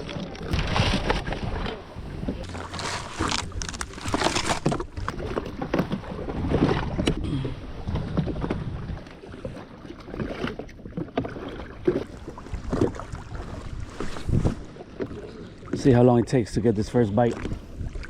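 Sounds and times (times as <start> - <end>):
water slapping against jet ski: 7.8 - 16.1
wind buffeting microphone: 12.4 - 14.7.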